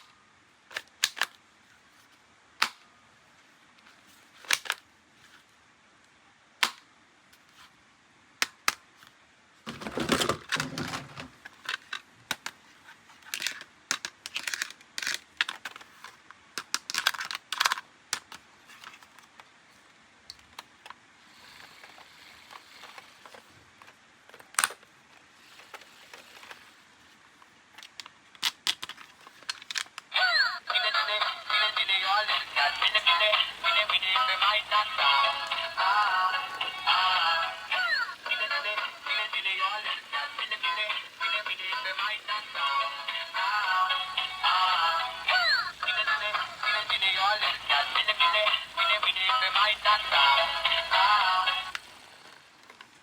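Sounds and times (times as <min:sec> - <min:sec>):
plastic toys clicking and snapping: 0:00.7 - 0:01.4, 0:02.6 - 0:02.9, 0:04.4 - 0:04.8, 0:06.6 - 0:06.9, 0:08.4 - 0:09.1, 0:09.8 - 0:12.6, 0:13.2 - 0:19.5, 0:20.3 - 0:21.0, 0:21.8 - 0:24.9, 0:27.8 - 0:30.1.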